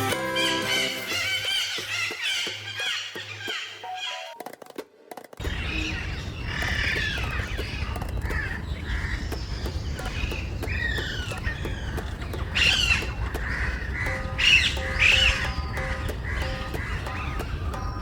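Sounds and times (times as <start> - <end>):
wild birds squawking: 0.3 - 4.4, 5.4 - 18.0
held musical tones: 3.8 - 4.5, 5.4 - 18.0
low wind rumble: 5.4 - 18.0.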